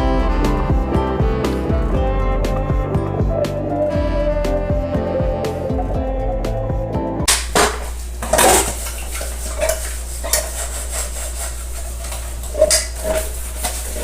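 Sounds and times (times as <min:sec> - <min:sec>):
piano music: 0:00.0 - 0:07.3
dishes and cutlery clattering: 0:08.2 - 0:10.6.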